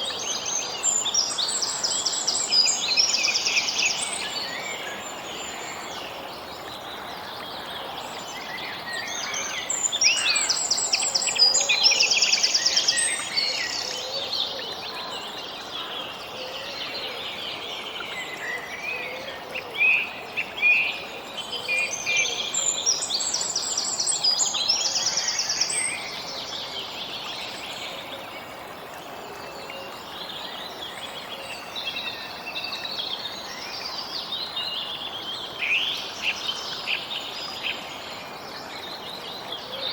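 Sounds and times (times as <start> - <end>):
birds singing and chirping: 0.0 - 15.9.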